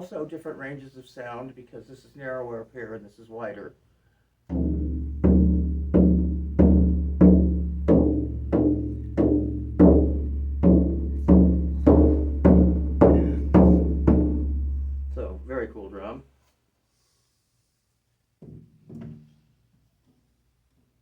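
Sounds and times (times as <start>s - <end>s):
frame drum beating: 4.5s - 15.8s.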